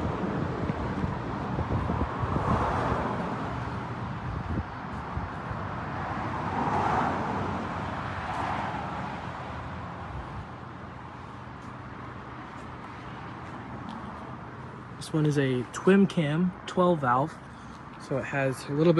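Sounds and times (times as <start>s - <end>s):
vehicles passing: 0.0s - 18.9s.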